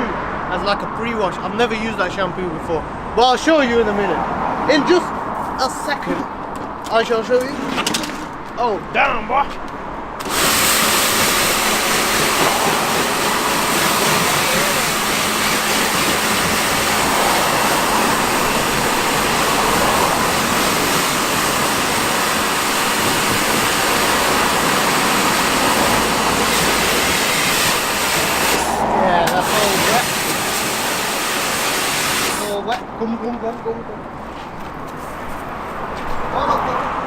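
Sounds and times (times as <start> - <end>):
pressure washer spraying: 10.2 - 32.6.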